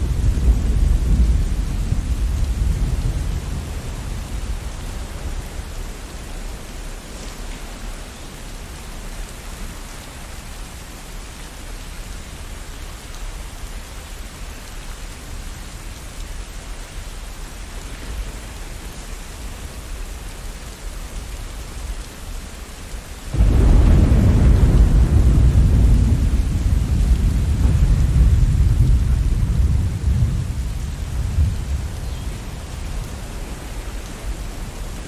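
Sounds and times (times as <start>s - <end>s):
deep rolling thunder: 0.0s - 5.4s, 23.3s - 35.0s
steady rain: 0.0s - 35.0s.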